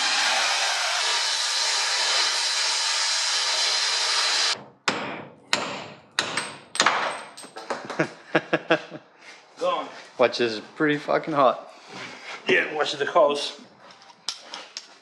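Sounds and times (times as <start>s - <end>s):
torch flame hissing: 0.0s - 4.6s.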